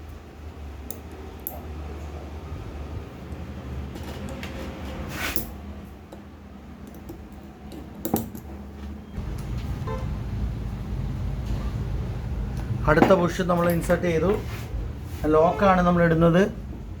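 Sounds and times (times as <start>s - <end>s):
steady low hum: 4.8s - 17.0s.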